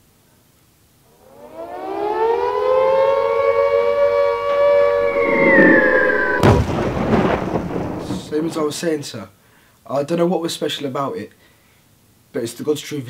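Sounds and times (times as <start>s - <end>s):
air-raid siren wailing: 1.1s - 8.3s
loud crash: 4.9s - 8.8s.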